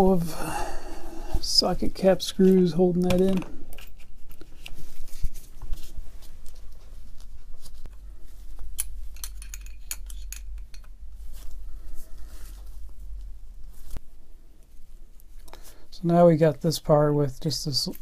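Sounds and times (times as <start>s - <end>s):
low steady hum: 0.0s - 17.8s.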